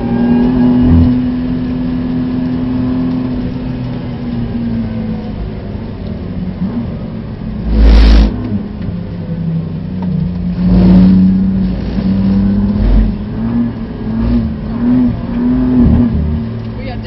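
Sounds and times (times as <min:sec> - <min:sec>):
car engine from inside cabin: 0:00.0 - 0:17.0
loud rushing bursts of noise: 0:07.6 - 0:08.4.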